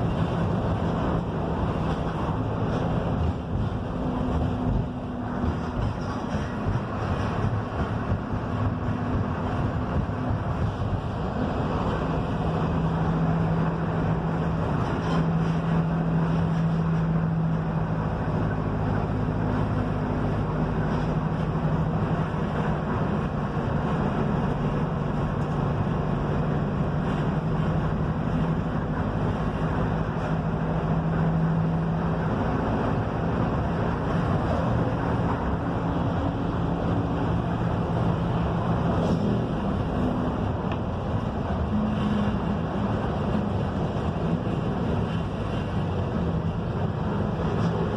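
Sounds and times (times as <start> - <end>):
bus diesel engine droning: 0.0 - 47.9
road and wind noise: 0.0 - 47.9.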